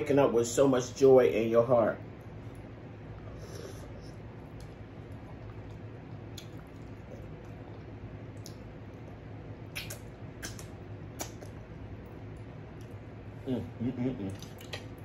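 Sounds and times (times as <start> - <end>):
steady low hum: 0.0 - 15.0
wet chewing and lip smacks: 4.0 - 13.2, 14.3 - 15.0.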